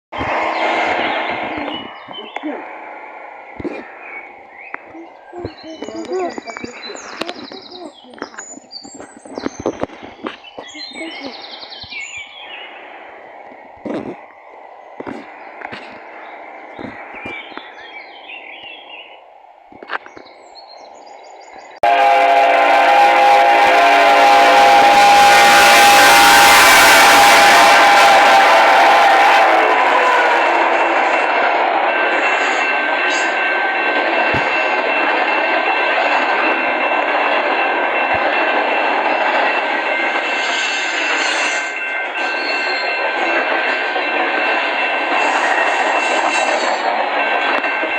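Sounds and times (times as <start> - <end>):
train wheels rushing on rails: 0.1 - 47.9
birds chirping faintly: 3.4 - 21.8
locomotive horn chord: 21.8 - 30.7.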